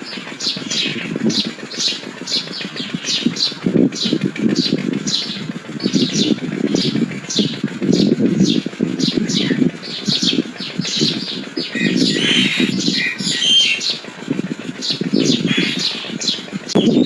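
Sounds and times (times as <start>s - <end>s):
low burbling: 0.0s - 17.0s
bird chirps and whistles: 9.0s - 14.0s.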